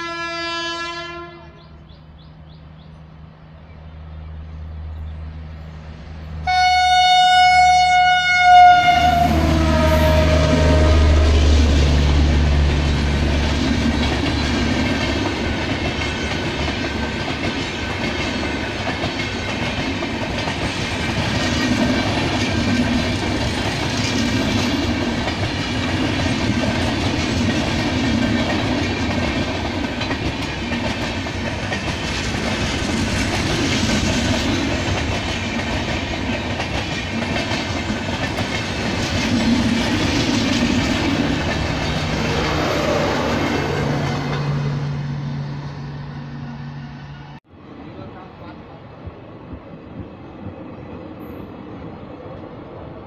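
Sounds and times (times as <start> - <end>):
train wheels clickety-clack on rail: 7.4 - 44.8, 48.3 - 53.0.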